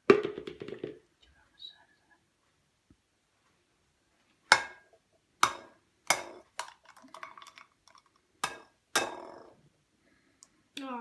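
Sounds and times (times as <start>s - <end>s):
egg knocking against jug rim: 4.5s - 9.4s.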